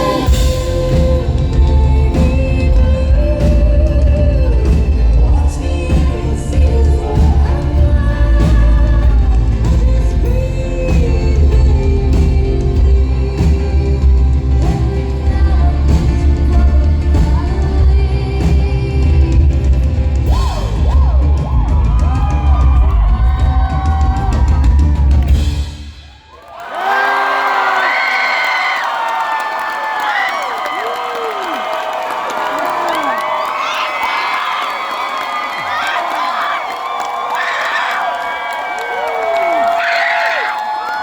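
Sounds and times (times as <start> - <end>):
person singing: 0.0 - 24.8
live rock band playing: 0.0 - 25.8.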